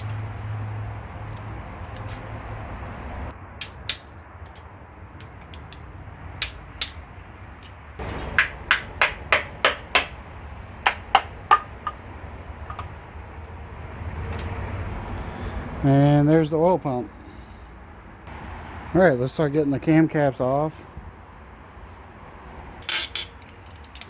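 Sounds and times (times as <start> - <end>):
hammer striking metal: 8.0 - 12.9.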